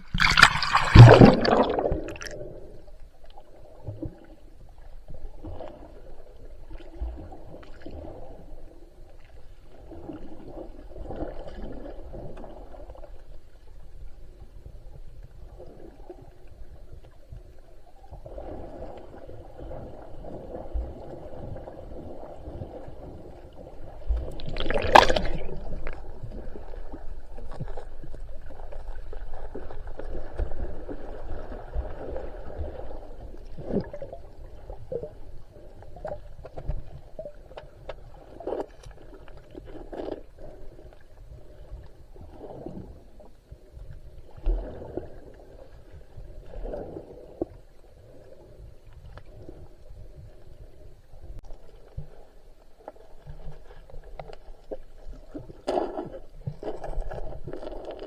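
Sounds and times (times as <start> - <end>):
water splashing and gurgling: 0.0 - 4.4, 18.0 - 58.0.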